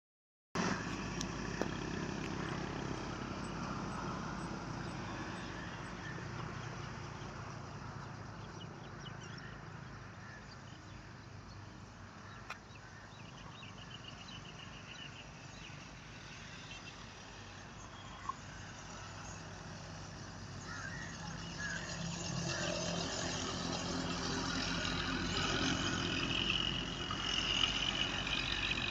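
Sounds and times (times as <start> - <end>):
road traffic passing: 0.6 - 28.9.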